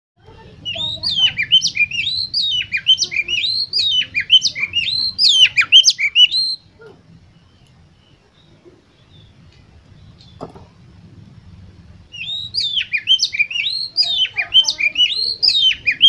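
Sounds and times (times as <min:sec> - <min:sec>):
faint low hum: 0:00.2 - 0:16.0
bird singing whistled notes: 0:00.6 - 0:06.7, 0:12.1 - 0:16.0.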